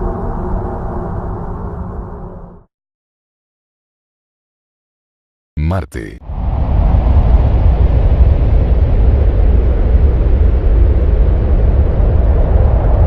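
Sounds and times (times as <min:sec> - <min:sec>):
deep rumbling noise: 0:06.2 - 0:13.0.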